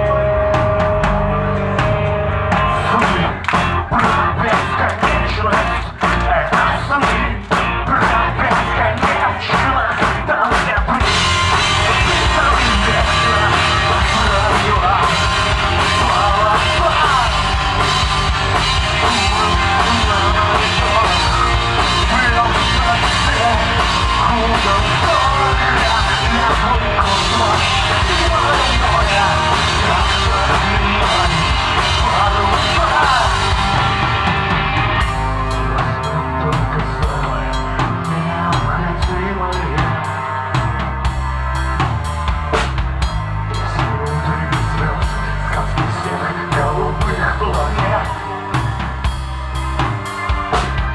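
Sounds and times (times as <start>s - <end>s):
live rock band playing: 0.0s - 50.9s.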